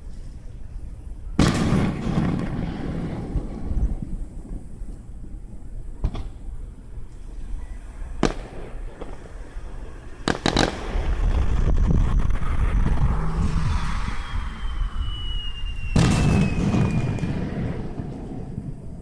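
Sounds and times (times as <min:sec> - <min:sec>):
fireworks bangs and cracks: 0:01.4 - 0:05.1, 0:06.0 - 0:06.6, 0:08.2 - 0:19.0.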